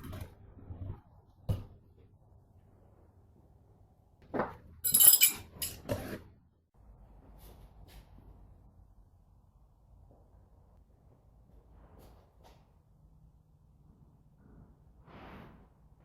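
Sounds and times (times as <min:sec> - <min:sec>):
metallic clinks and knocks: 0:04.8 - 0:05.8.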